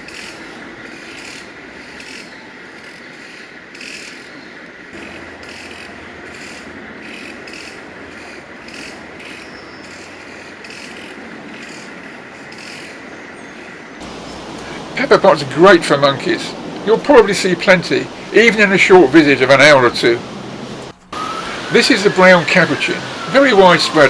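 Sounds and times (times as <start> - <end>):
insects high whine: 14.0 - 24.0
insects rasping: 14.0 - 24.0.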